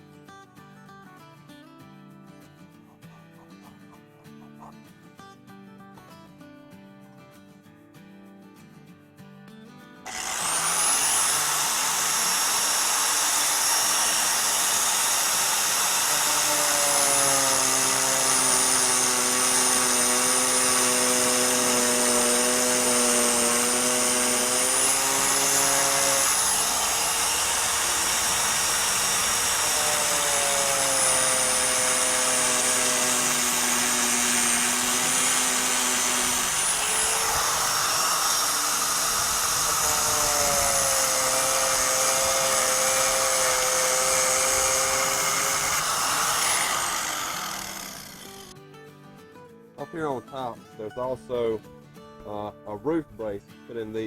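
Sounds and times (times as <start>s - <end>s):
power tool motor whine: 10.1s - 48.5s.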